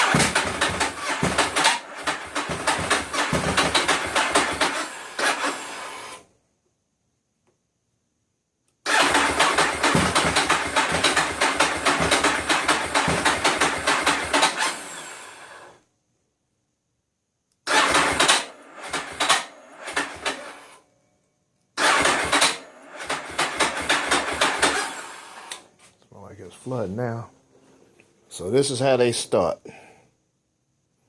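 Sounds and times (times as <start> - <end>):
motorcycle engine cranking: 0.0 - 6.2, 8.8 - 15.6, 17.6 - 20.8, 21.8 - 25.7.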